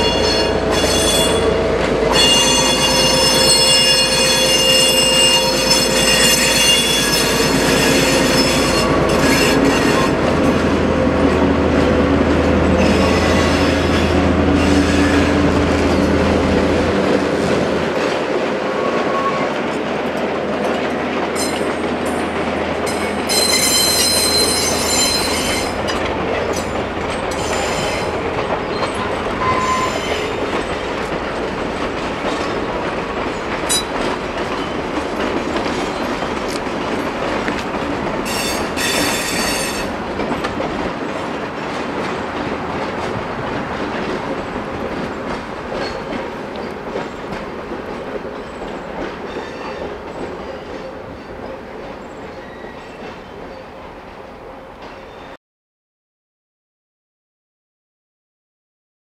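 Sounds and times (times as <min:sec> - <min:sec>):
wheel flange squeals: 0:00.0 - 0:10.1, 0:27.3 - 0:30.4
train rumbling over rails: 0:00.0 - 0:55.4.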